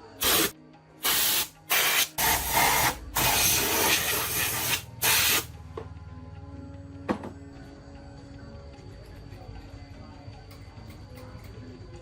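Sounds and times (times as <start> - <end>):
pressurised spray hissing: 0.0 - 5.5.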